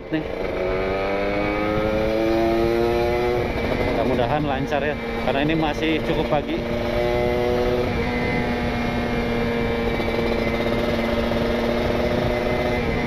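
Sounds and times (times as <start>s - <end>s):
two-stroke motorcycle engine: 0.0s - 13.0s
wind on microphone: 0.3s - 13.0s.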